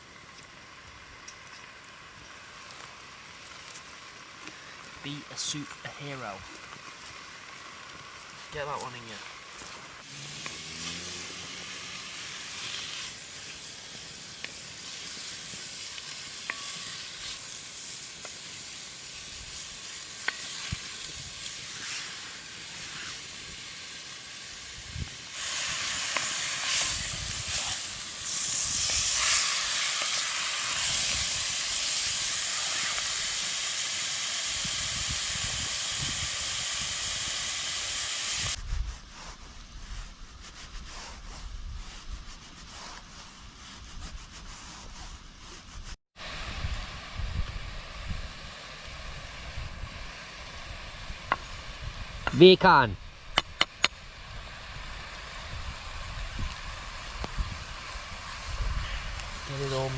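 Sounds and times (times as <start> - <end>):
meat sizzling in oil: 6.5 - 38.6.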